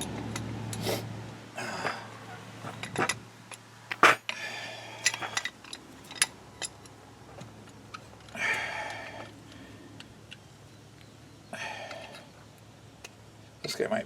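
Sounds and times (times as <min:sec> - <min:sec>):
metal tools clinking on caliper: 0:02.6 - 0:07.0.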